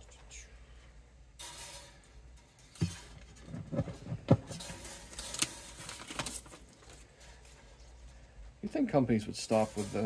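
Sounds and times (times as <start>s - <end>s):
crinkling wrapping: 3.5s - 8.0s.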